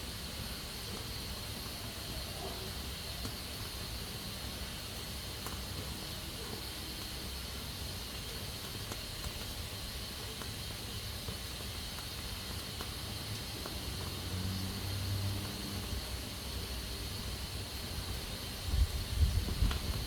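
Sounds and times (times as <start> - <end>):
pressure cooker hissing: 0.0 - 20.0.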